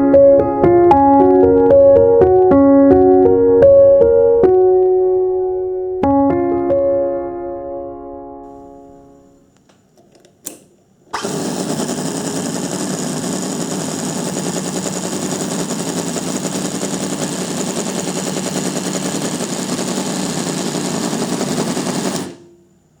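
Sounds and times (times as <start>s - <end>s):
miniature engine running: 11.2s - 22.4s.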